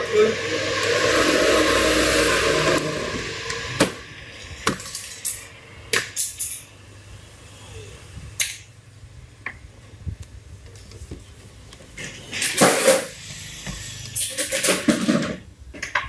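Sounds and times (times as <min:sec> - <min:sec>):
objects clattering and rustling: 0:10.7 - 0:16.0.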